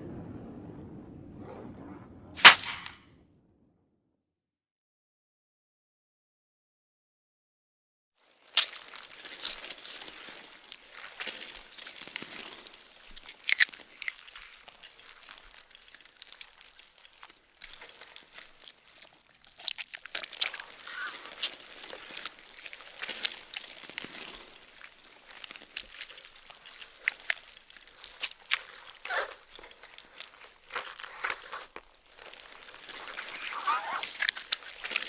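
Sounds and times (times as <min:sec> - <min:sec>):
sharp crack: 0:02.4 - 0:03.2
wet crunching and tearing: 0:08.2 - 0:35.0.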